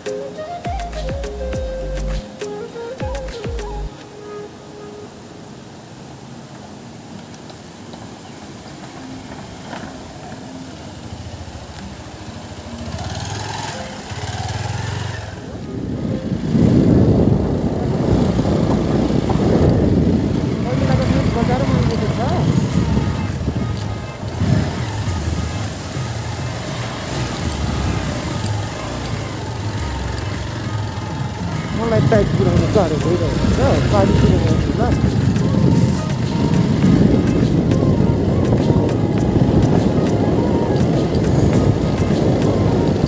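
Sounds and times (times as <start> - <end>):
road and wind noise: 0.0 - 43.0
motorcycle engine running: 8.8 - 43.0.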